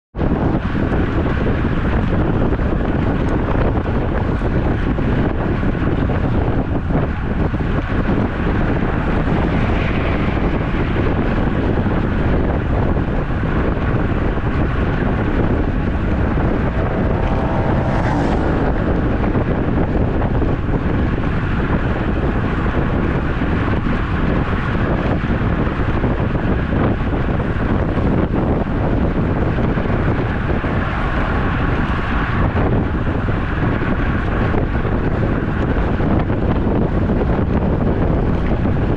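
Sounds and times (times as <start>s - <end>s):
wind buffeting microphone: 0.1s - 38.9s.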